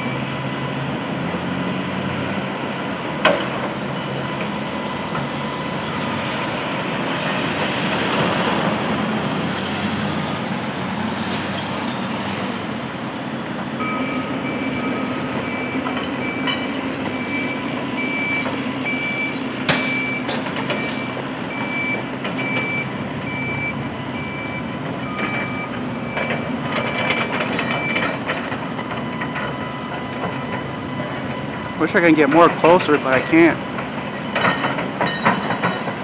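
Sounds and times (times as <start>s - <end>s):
reversing alarm beeping: 0.0s - 1.2s, 13.8s - 36.0s
heavy machinery engines running: 0.0s - 36.0s.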